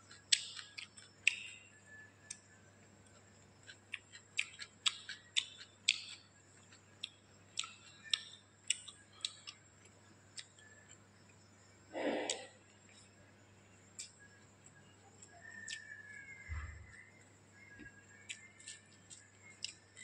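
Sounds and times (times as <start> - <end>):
person chewing food: 0.0 - 2.4, 3.0 - 11.1, 15.2 - 17.0, 18.2 - 20.0.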